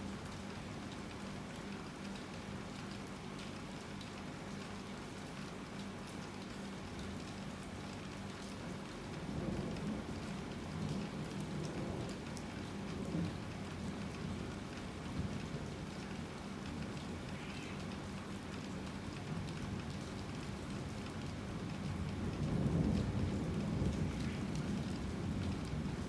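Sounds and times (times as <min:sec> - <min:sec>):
heavy rain falling: 0:08.3 - 0:26.0
thunder rumbling: 0:22.2 - 0:26.0.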